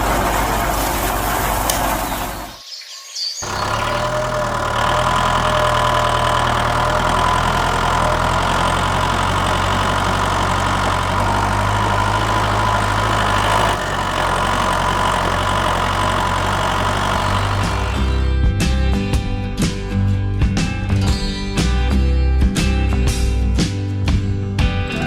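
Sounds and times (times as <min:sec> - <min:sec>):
small thresher motor humming: 0:03.4 - 0:18.4.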